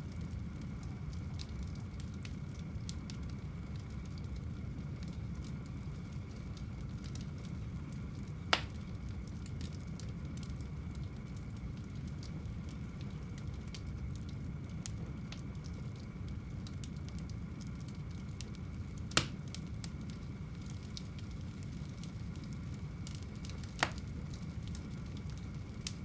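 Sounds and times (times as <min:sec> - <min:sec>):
fire crackling: 0:00.0 - 0:26.0
fire rumbling: 0:00.0 - 0:26.0
loud sharp pops: 0:19.2 - 0:19.4.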